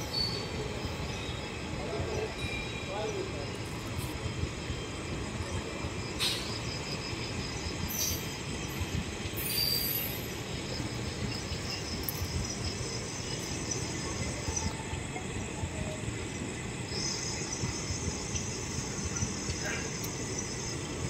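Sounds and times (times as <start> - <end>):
train wheels rumbling on rail: 0.0 - 21.0
high wheel squeaks: 7.8 - 10.5.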